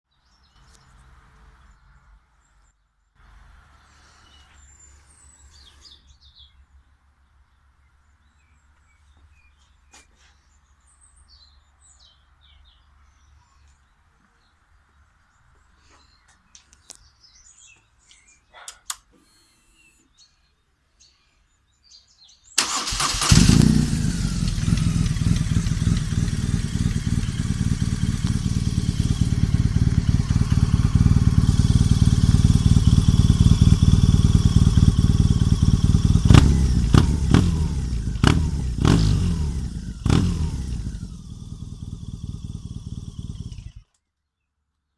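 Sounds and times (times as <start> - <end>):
motorcycle engine idling and revving: 22.6 - 43.9.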